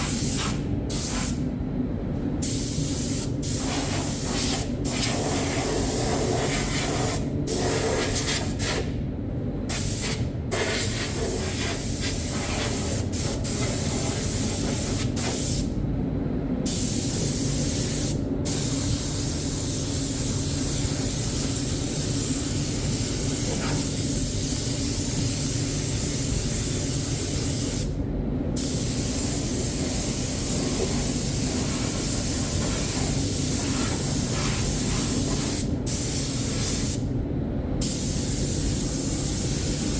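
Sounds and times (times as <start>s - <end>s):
steady low hum: 0.0s - 39.9s
spray gun hissing: 28.6s - 37.0s.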